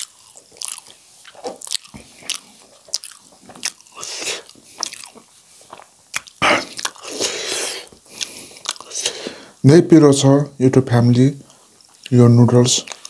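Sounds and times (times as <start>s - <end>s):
chewing noodles with wet smacks: 0.0s - 9.2s
mouth clicks: 1.7s - 9.4s.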